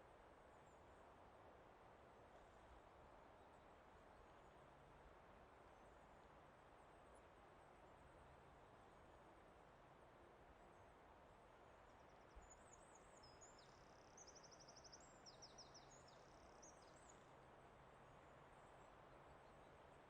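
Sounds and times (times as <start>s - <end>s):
soft steady hiss: 0.0s - 20.0s
songbird singing: 12.0s - 17.4s.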